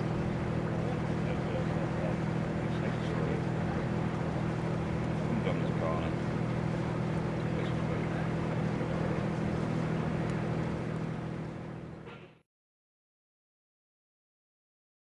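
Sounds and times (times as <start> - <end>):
boat engine humming: 0.0 - 12.4.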